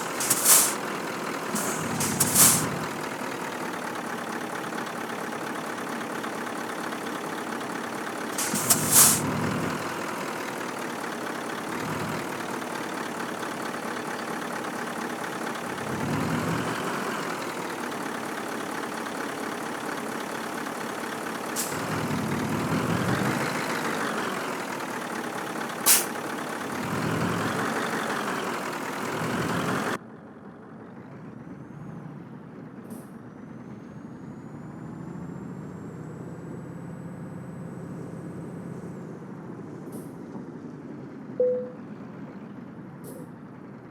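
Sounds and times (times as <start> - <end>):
air brake hisses: 0.0 - 2.9, 8.4 - 9.4, 21.5 - 21.9, 25.8 - 26.2
truck diesel engine revving: 0.0 - 43.8.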